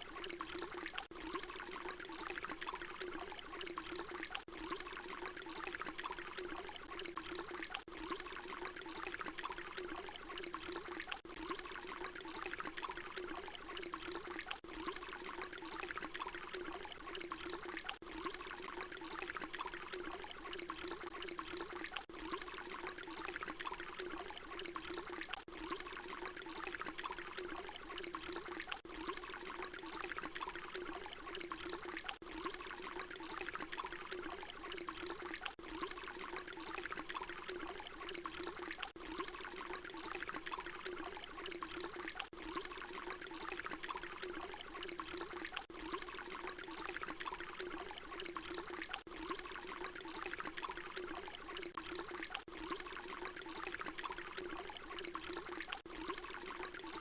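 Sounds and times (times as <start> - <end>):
water pouring splashing: 0.0 - 57.0.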